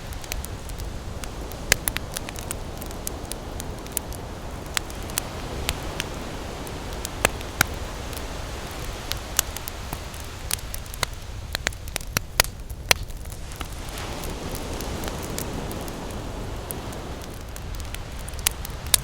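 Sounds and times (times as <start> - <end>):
ocean surf: 0.0 - 12.0, 13.3 - 19.0
campfire crackling: 0.0 - 19.0.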